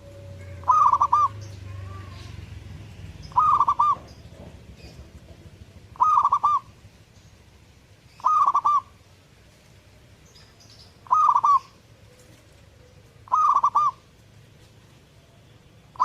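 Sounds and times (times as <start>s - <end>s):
dove cooing: 0.0s - 2.3s, 3.3s - 4.2s, 5.8s - 6.8s, 8.1s - 9.0s, 11.0s - 14.1s.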